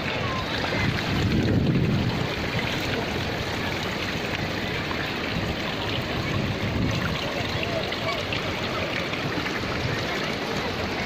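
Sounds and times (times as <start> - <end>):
small waterfall pouring: 0.0 - 11.0.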